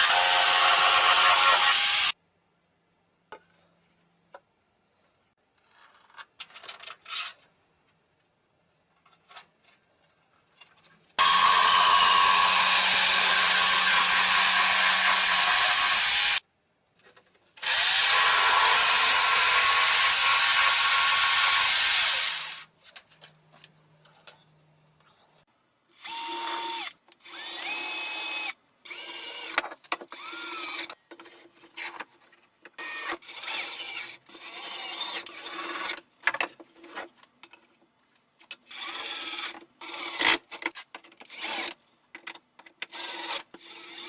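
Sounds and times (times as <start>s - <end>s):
jigsaw cutting wood: 0.0s - 2.2s, 11.2s - 16.4s, 17.6s - 22.6s.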